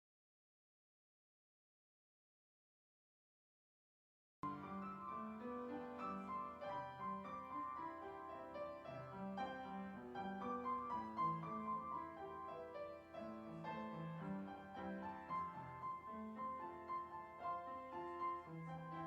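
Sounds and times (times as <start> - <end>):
piano music: 4.4 - 19.0.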